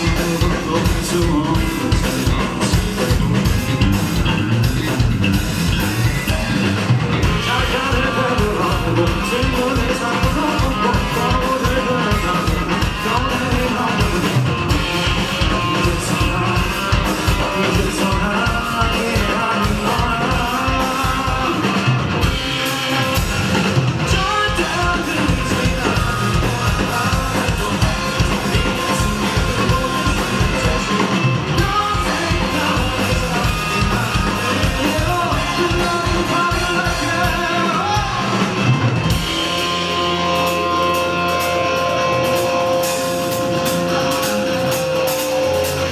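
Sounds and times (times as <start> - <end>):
person singing: 0.0 - 4.6, 7.2 - 45.9
drum beat: 0.0 - 45.9
electric guitars: 0.0 - 45.9.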